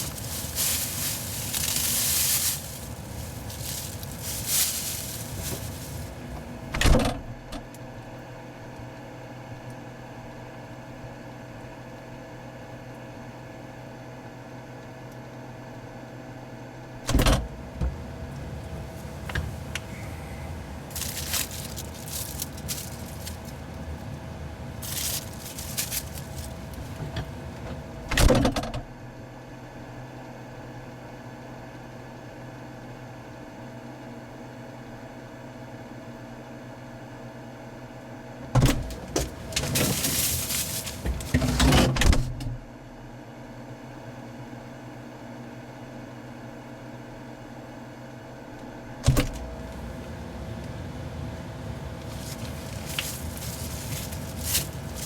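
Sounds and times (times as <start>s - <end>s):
rustling: 0.0s - 6.7s, 17.8s - 27.8s, 38.8s - 41.7s, 49.4s - 55.0s
refrigerator humming: 0.0s - 55.0s.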